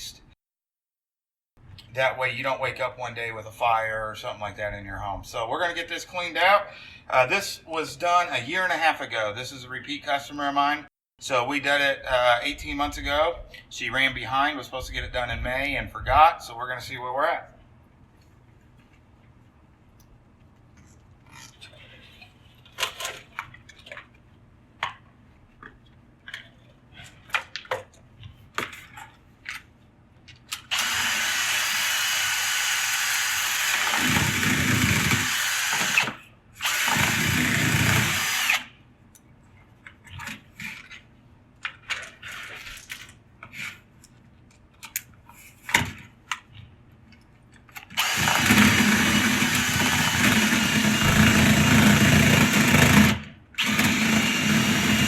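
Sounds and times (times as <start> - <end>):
power drill spinning brush: 30.7 - 38.6, 48.0 - 55.0.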